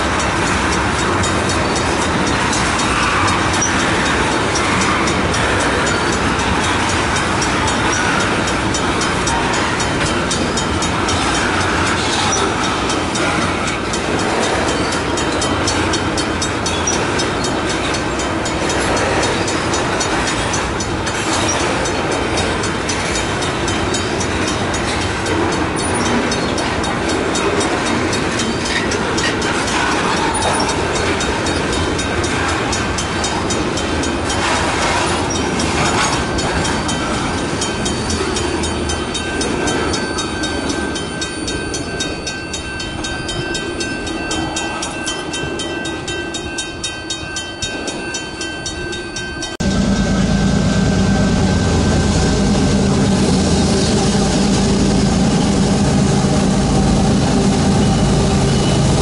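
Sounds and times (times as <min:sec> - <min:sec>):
steel wheels on rails: 0:00.0 - 0:59.0.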